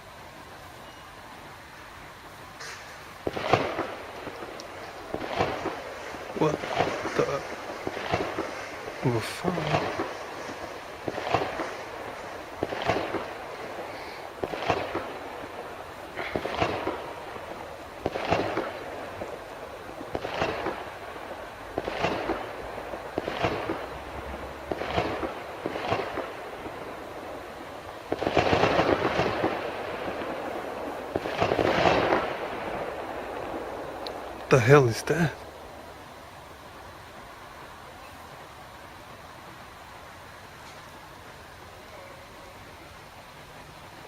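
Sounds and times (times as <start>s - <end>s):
explosive bangs with echo: 5.1s - 13.8s, 16.2s - 17.2s, 28.1s - 32.9s.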